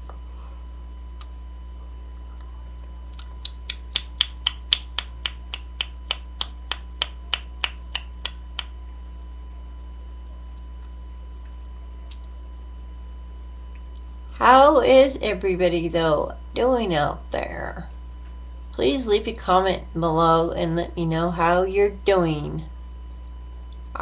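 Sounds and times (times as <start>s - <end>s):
low electrical hum: 0.0s - 24.0s
fingers snapping: 3.1s - 8.8s, 12.1s - 12.3s.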